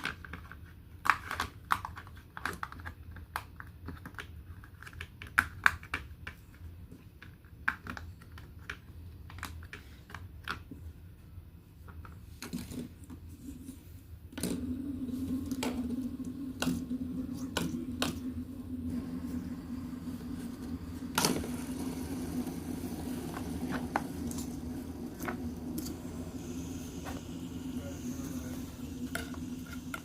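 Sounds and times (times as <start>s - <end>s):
steady low hum: 12.9s - 30.0s.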